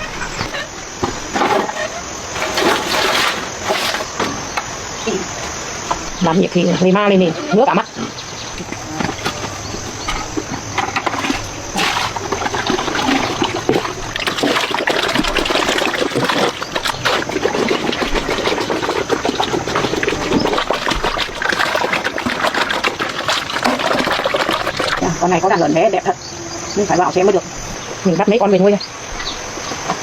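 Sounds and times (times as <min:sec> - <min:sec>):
water splashing and running: 0:10.3 - 0:25.2.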